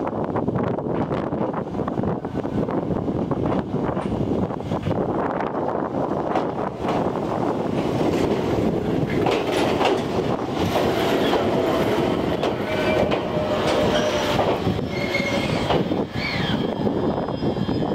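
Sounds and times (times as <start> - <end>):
electric train rolling in: 0.0 - 17.9
wheels clicking over rail joints: 6.2 - 14.7
train squealing: 8.0 - 17.9.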